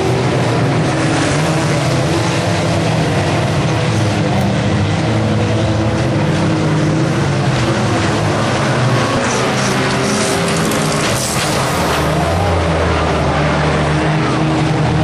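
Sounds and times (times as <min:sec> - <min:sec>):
racing car engines revving: 0:00.0 - 0:15.0.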